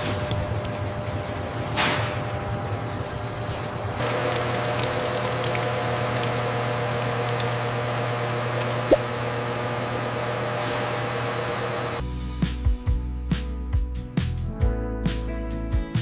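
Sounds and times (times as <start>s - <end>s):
factory machinery hum: 0.0s - 12.0s.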